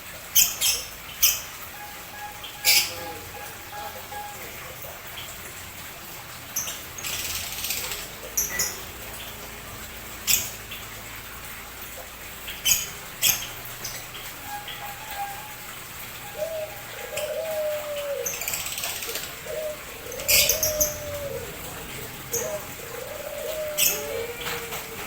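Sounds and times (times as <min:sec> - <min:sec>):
birds chirping: 0:00.0 - 0:25.0
low cooing: 0:14.5 - 0:25.0.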